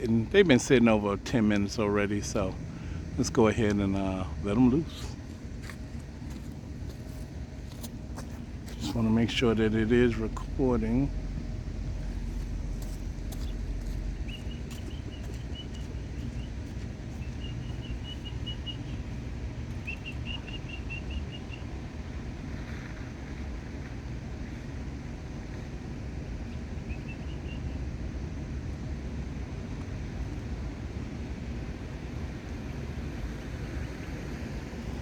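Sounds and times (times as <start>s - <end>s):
low outdoor rumble: 0.0s - 35.0s
bird chirping: 12.1s - 19.0s, 19.8s - 21.7s.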